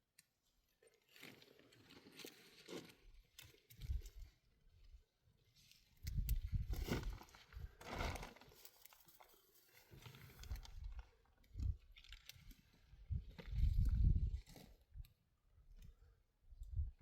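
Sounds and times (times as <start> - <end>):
crunching and rustling: 0.8 - 4.3, 5.7 - 14.9.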